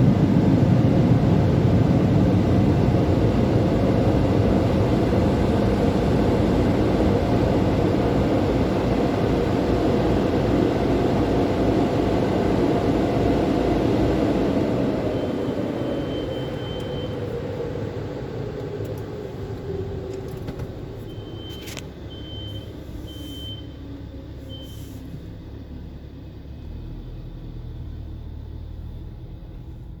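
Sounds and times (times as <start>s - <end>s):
car wash dryer blowers humming: 0.0s - 21.1s
short high beeps: 21.2s - 23.8s.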